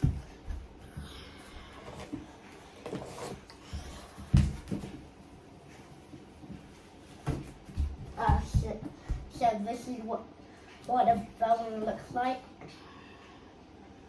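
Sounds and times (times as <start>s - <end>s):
objects knocking and thumping: 1.8s - 5.0s.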